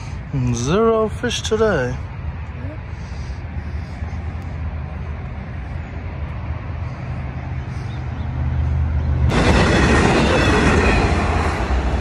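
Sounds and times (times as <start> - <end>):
passenger train rushing past: 4.2 - 12.0.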